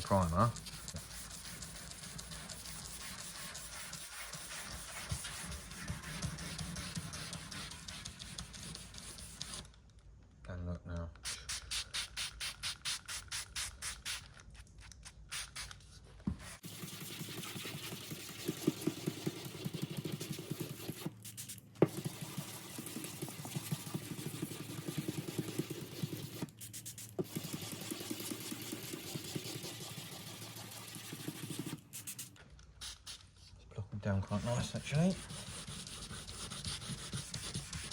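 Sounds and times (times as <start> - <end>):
sanding block rubbing on metal: 0.1 - 9.4, 34.3 - 37.9.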